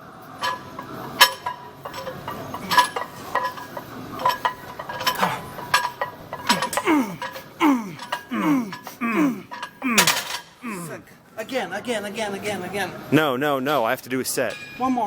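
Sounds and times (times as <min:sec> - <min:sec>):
gym weights clinking: 0:00.4 - 0:10.6
person groaning: 0:06.5 - 0:11.1.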